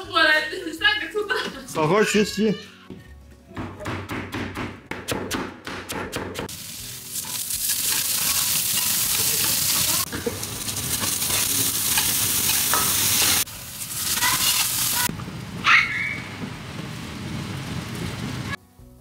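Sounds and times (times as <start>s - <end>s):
food sizzling in hot oil: 6.4s - 18.6s
metal spatula scraping pot: 7.2s - 13.4s, 14.0s - 15.1s.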